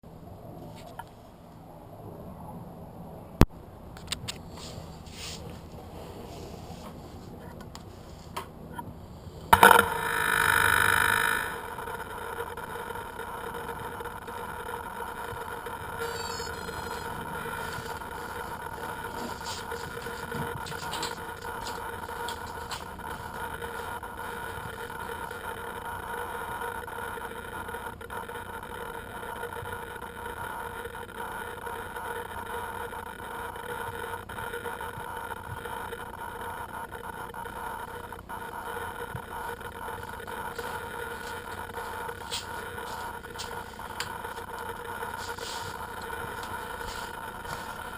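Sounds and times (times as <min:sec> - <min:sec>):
model aircraft motors humming: 0:06.5 - 0:47.9.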